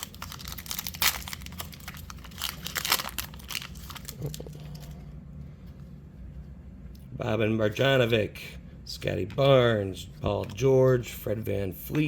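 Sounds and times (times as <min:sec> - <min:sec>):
card pack wrapper tearing and crinkling: 0:00.0 - 0:05.0.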